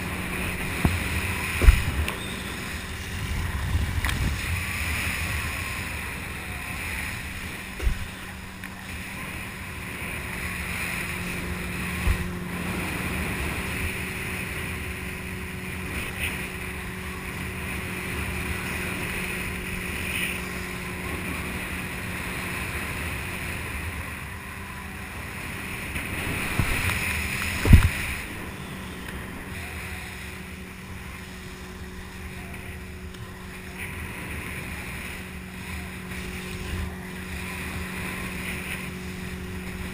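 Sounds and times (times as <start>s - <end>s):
boat engine running: 0.0s - 39.9s
rushing water: 0.0s - 39.9s
wind buffeting microphone: 0.0s - 39.9s
short thumps: 1.6s - 2.2s.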